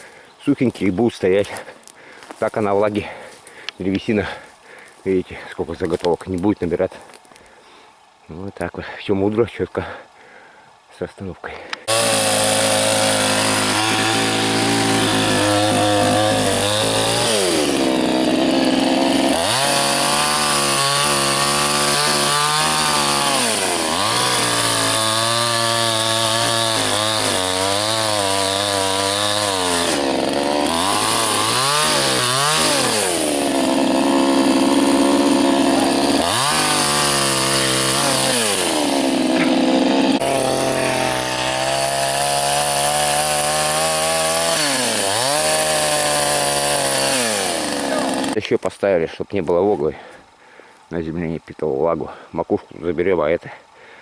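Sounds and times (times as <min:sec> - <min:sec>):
chainsaw cutting wood: 0:11.8 - 0:48.4.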